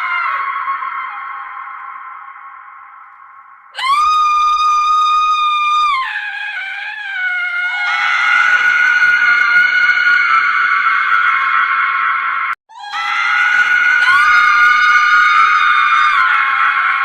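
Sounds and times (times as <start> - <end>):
woman screaming: 3.8 - 11.4, 12.7 - 17.0.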